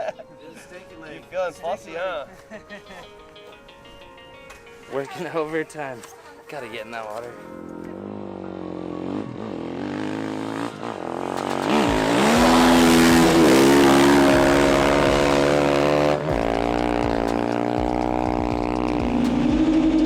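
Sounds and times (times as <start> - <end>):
dirt bike engine revving: 7.7 - 20.0.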